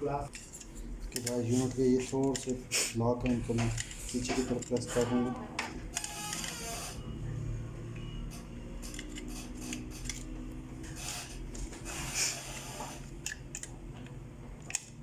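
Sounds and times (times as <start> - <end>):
plastic parts rubbing and clicking: 3.2 - 5.3, 8.8 - 13.8
sharp plastic clicks: 14.6 - 15.0.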